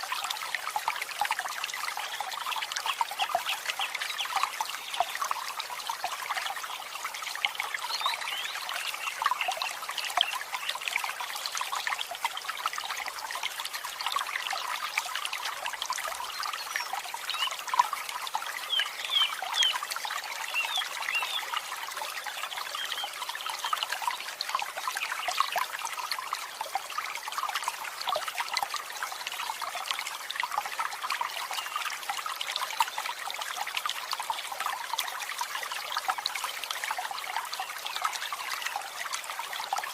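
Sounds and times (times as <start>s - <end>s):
birds chirping and twittering: 18.7s - 19.8s, 20.5s - 21.5s, 22.7s - 23.7s.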